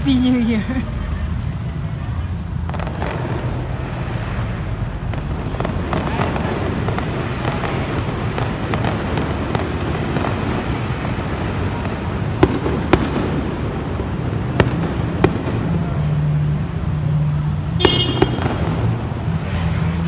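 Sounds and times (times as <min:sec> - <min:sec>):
fireworks rumble of bangs: 0:00.0 - 0:20.0
sharp close firecracker cracks: 0:05.0 - 0:16.2, 0:17.7 - 0:19.1.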